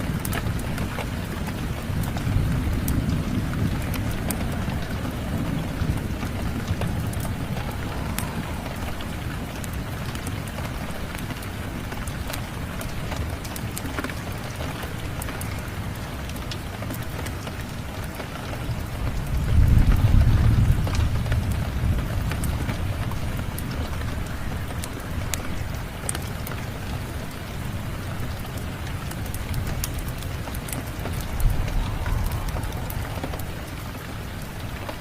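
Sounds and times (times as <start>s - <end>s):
wood fire crackling and popping: 0.0s - 24.0s, 28.1s - 35.0s
steady rain: 0.0s - 35.0s
low rumble: 3.0s - 11.1s, 30.2s - 35.0s.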